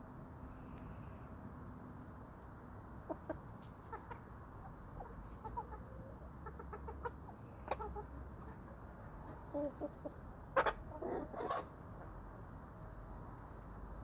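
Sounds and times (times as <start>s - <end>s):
chickens clucking: 3.0s - 12.2s.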